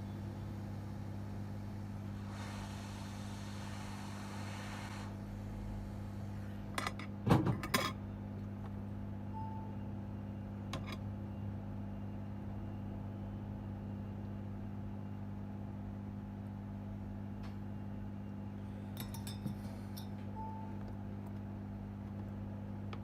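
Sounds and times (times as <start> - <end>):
electrical hum: 0.0 - 23.0
short beep-like tone: 9.4 - 9.8.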